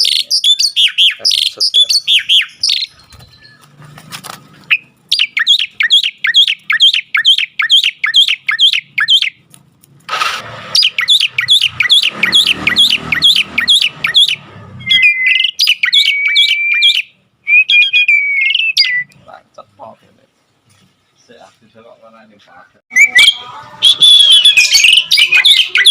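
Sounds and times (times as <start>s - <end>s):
myna sharp chirps: 0.0s - 3.8s, 4.5s - 9.5s, 10.6s - 19.2s, 22.9s - 25.9s
rustling: 2.9s - 5.1s.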